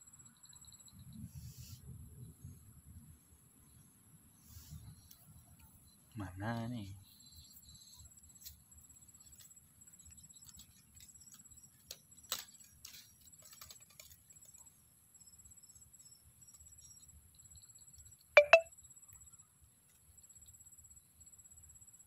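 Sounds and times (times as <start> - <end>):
soft clicks and rustles: 9.2 - 14.6.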